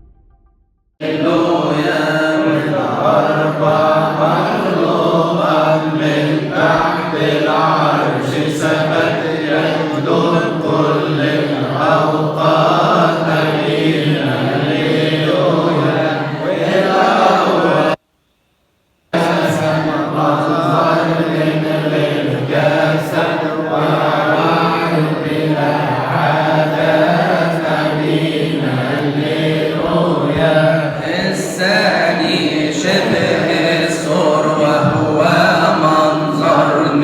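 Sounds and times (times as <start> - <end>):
steady low drone: 0.0 - 0.7
hymn chanted: 1.0 - 18.0, 19.1 - 37.0.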